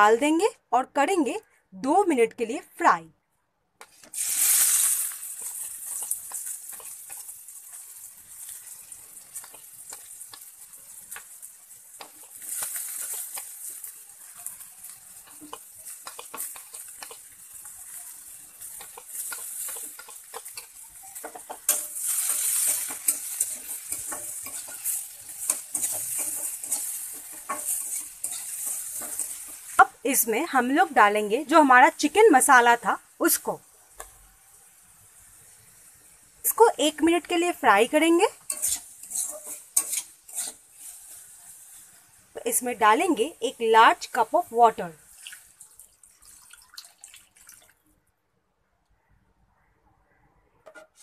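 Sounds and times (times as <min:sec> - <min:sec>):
spatula scraping and clinking on pan: 0:03.8 - 0:29.8, 0:38.3 - 0:41.9, 0:50.6 - 0:51.0
food sizzling in hot oil: 0:03.8 - 0:47.8.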